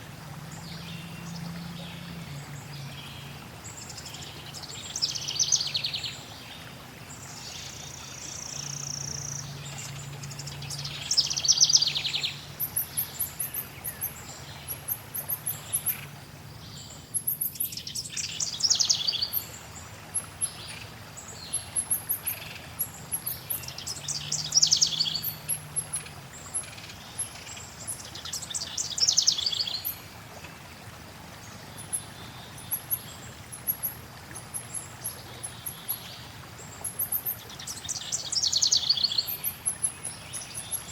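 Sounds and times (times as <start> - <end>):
songbird trilled song: 0.6 - 6.6, 7.2 - 19.6, 20.2 - 30.0, 31.7 - 40.9.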